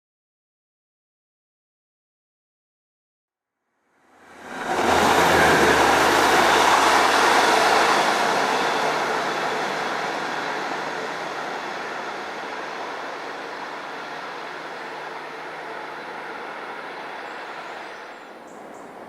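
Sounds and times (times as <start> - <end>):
diesel train passing: 4.0 - 19.0.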